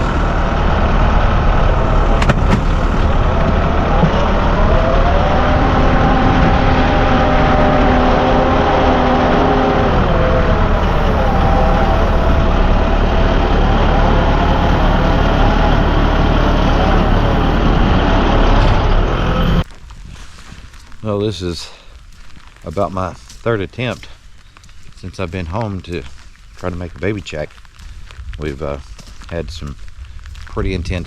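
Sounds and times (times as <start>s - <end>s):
rushing noise: 0.0s - 19.6s
vehicle engine droning: 0.0s - 19.7s.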